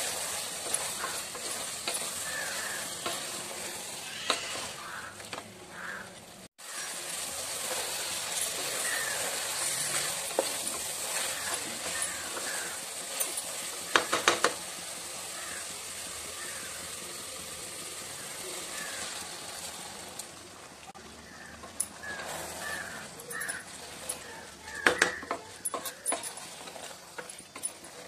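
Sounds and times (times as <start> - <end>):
wooden spatula stirring: 0.0 - 14.6, 21.0 - 28.0
chicken sizzling in a pot: 0.0 - 28.0
spatula knocking on pot: 24.7 - 26.2.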